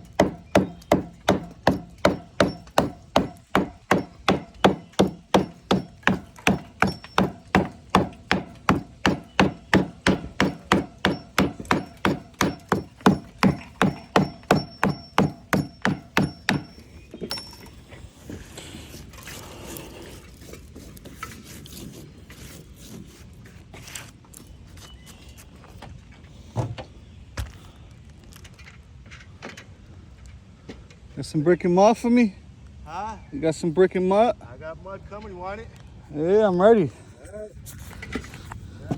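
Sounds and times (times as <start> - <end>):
hammer striking brick: 0.0 - 17.6
handling noise: 0.0 - 18.5.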